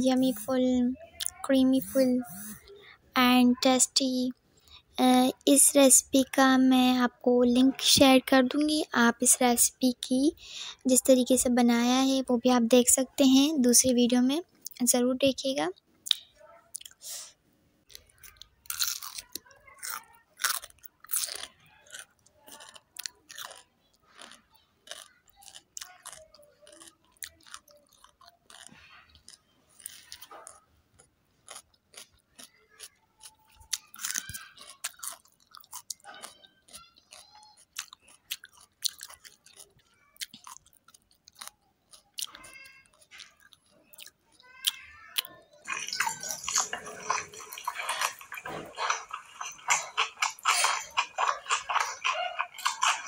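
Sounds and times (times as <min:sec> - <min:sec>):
person crunching and chewing food: 0:16.0 - 0:17.3, 0:17.9 - 0:53.0.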